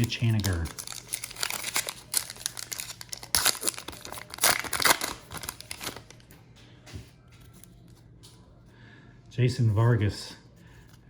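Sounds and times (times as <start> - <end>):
wrapper being torn and crinkled: 0.0 - 6.3.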